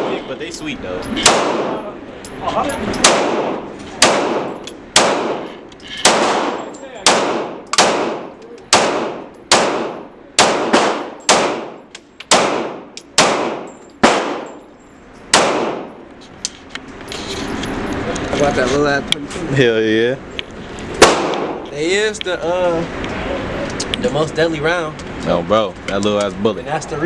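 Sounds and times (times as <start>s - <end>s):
gunshots with ringing tail: 1.2s - 1.9s, 3.0s - 14.6s, 15.3s - 16.0s, 21.0s - 21.6s.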